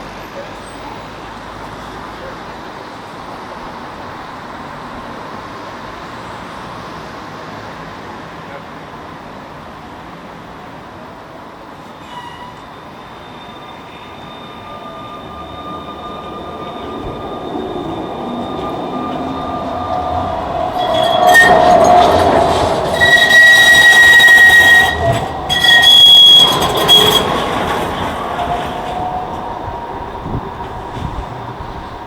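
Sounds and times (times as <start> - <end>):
tram running on rails: 0.0 - 32.0
tram wheels squealing: 11.6 - 32.0.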